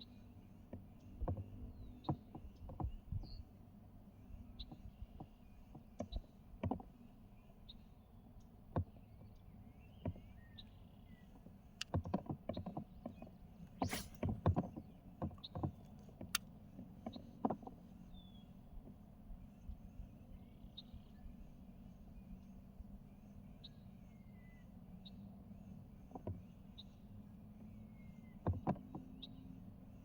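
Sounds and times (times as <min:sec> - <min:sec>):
faint bird chirps: 0:19.3 - 0:29.7.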